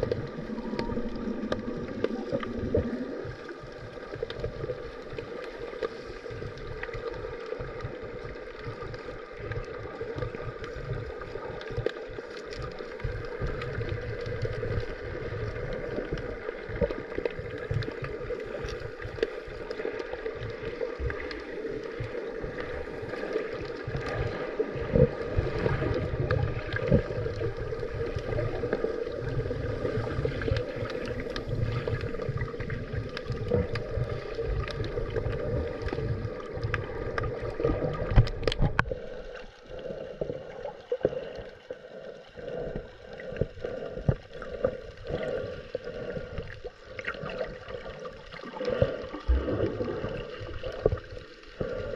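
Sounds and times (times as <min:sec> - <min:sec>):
uneven low rumble: 0:00.0 - 0:03.5
faint clicks: 0:00.0 - 0:24.4, 0:29.9 - 0:47.3
underwater hum: 0:00.0 - 0:51.9.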